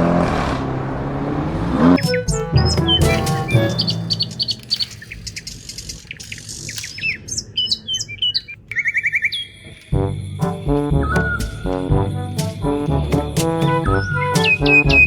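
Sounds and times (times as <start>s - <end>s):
birds chirping: 2.0s - 9.9s.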